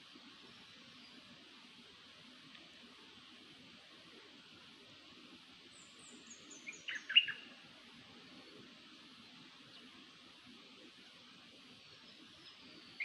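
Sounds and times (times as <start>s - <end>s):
steady hiss: 0.0s - 13.0s
songbird calling: 5.8s - 7.5s.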